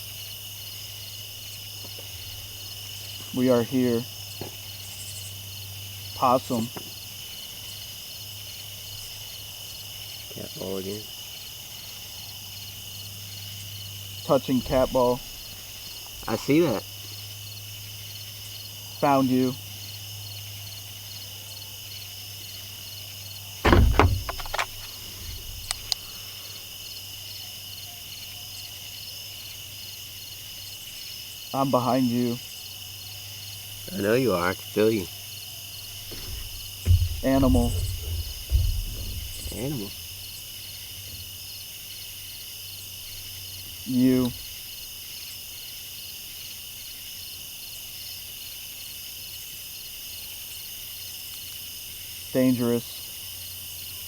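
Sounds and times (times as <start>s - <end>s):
crickets chirping: 0.0s - 54.0s
loud thumps: 14.6s - 16.5s, 23.6s - 26.2s, 35.9s - 41.4s
sharp clicks: 23.7s - 26.1s
faint low hum: 36.0s - 41.2s.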